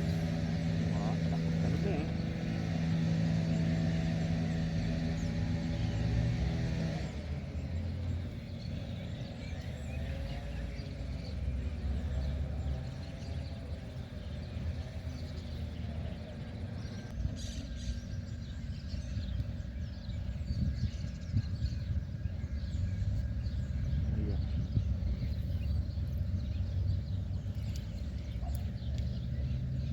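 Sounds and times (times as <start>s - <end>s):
heavy machinery engine running: 0.0s - 17.2s
birds chirping: 0.0s - 29.9s.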